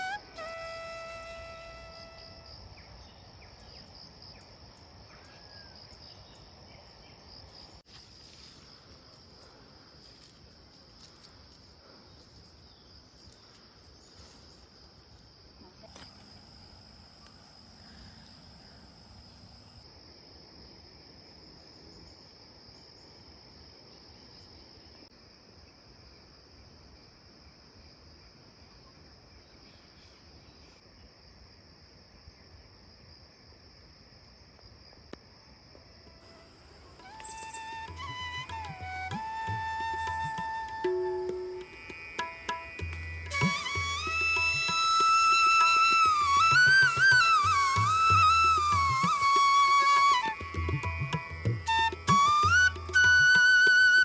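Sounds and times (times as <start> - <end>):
insects trilling: 0.0 - 19.8, 35.8 - 54.0
soft outdoor background noise: 0.0 - 54.0.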